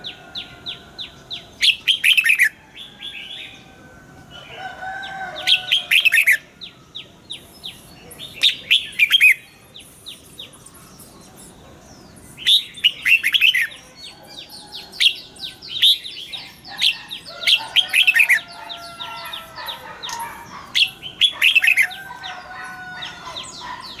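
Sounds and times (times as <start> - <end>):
bird chirping in fast bursts: 0.0 - 2.6, 5.4 - 24.0.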